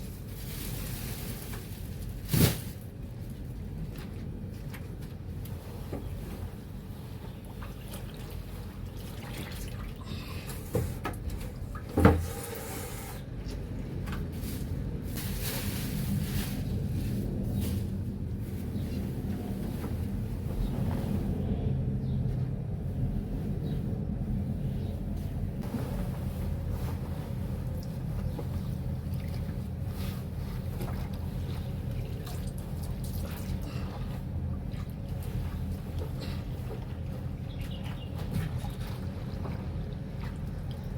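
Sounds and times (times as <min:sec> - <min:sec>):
water sloshing in a basin: 0:07.3 - 0:12.6, 0:28.7 - 0:40.9.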